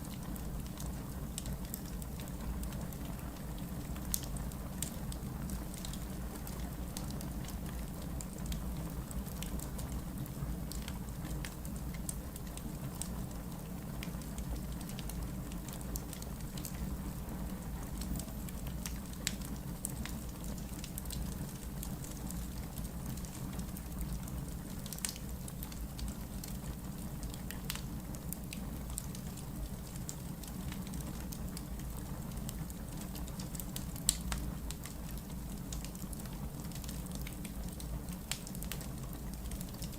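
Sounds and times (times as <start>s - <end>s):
wood crackling and popping: 9.4s - 21.9s, 24.6s - 39.9s.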